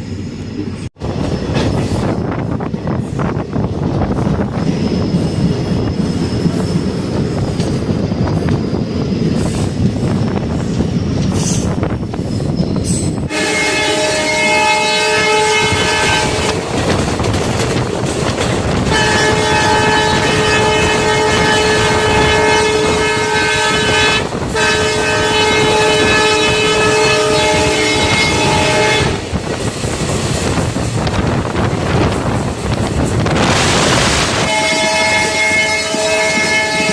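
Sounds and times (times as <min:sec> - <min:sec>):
train rumbling: 0:00.0 - 0:36.9
train horn blasts: 0:13.3 - 0:16.6, 0:18.8 - 0:29.3, 0:34.0 - 0:36.9.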